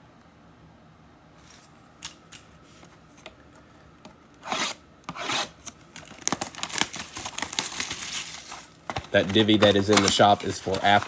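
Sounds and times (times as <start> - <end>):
packaging ripping: 5.4 - 11.0
packaging crinkling and rustling: 5.6 - 11.0.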